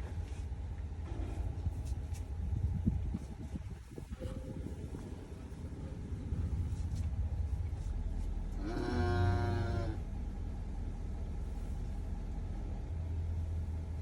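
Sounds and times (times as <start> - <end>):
low engine-like rumble: 0.0 - 14.0
cow mooing: 8.6 - 10.0.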